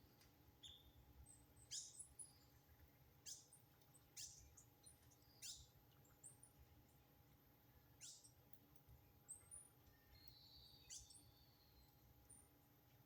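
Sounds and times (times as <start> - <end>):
thin high bird tweets: 0.6 - 2.6, 3.2 - 6.4, 8.0 - 8.4, 9.3 - 12.4.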